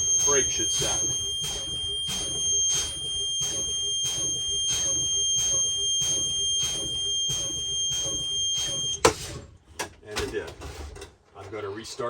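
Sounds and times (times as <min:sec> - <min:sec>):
warning buzzer steady high tone: 0:00.0 - 0:09.0.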